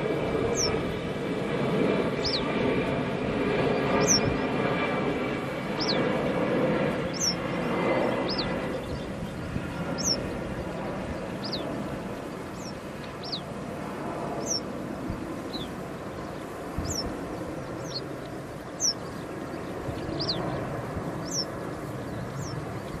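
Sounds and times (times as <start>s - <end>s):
steady low rumble: 0.0s - 23.0s
bird high downward call: 7.1s - 7.4s, 14.4s - 14.7s, 21.2s - 21.6s.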